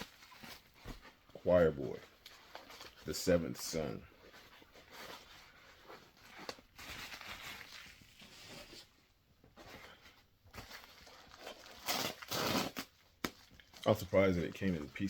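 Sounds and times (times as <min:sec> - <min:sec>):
packaging rustling: 0:03.9 - 0:08.9, 0:09.6 - 0:15.0.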